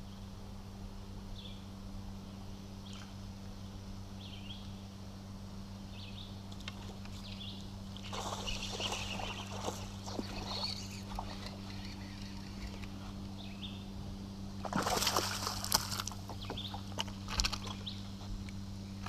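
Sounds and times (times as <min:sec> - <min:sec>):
steady low hum: 0:00.0 - 0:19.0
fish splash at water surface: 0:08.0 - 0:10.6, 0:14.6 - 0:16.1.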